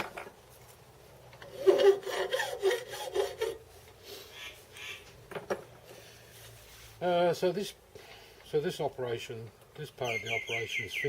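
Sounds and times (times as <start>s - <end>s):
hand file rubbing on metal: 1.5s - 3.6s.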